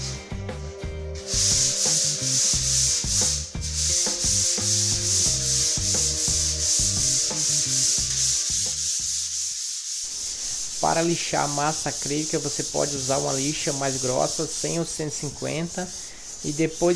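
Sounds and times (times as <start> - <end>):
background music: 0.0 - 9.4
sandpaper scraping wall putty: 1.2 - 16.9.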